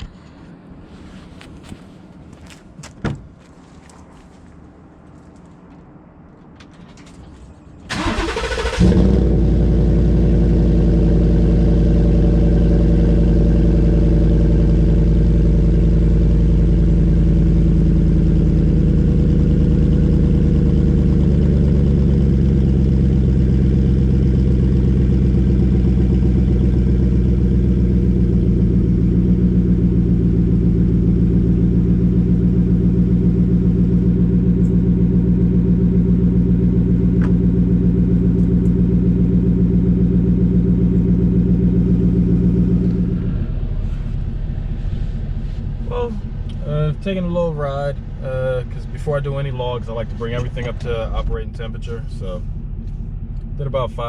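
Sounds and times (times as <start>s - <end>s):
car engine idling: 6.4s - 54.0s
starter motor cranking: 7.9s - 9.2s.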